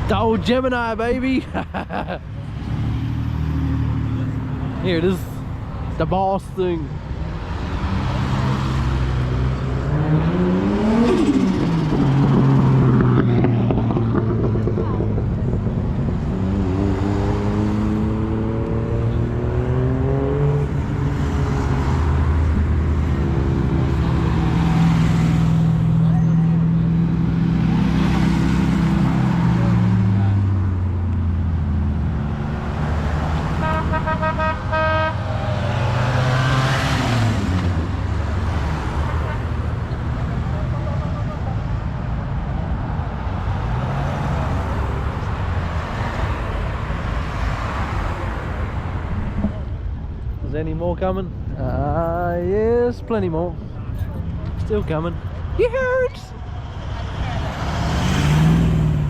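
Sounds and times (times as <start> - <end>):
cars driving past: 0.0 - 59.0
car horn tooting: 33.5 - 35.4.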